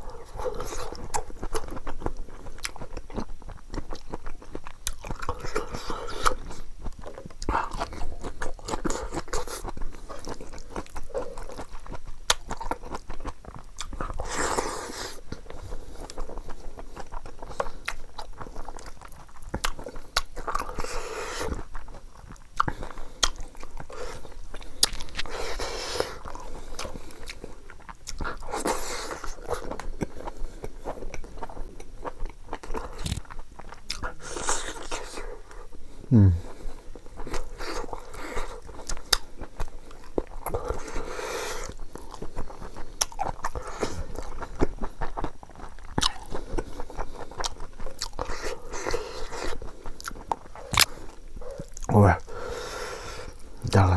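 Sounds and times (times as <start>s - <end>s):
chewing: 0.0s - 53.9s
crunching bites: 32.5s - 35.0s, 49.5s - 52.0s
wet mouth clicks: 32.9s - 33.2s, 50.0s - 51.9s.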